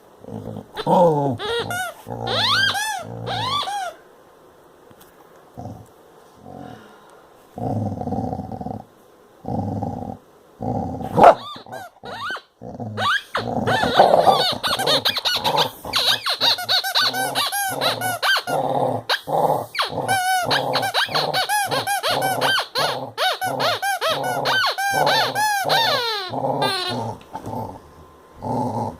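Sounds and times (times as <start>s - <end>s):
dog growling: 0.2s - 4.0s, 5.6s - 6.8s, 7.6s - 28.9s
squeaky toy squeaking: 1.4s - 4.0s, 11.2s - 18.6s, 19.8s - 27.0s.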